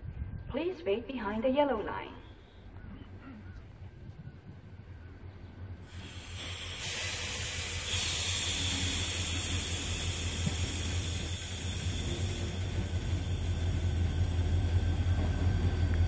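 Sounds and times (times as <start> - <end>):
approaching train hiss: 5.7 - 16.0.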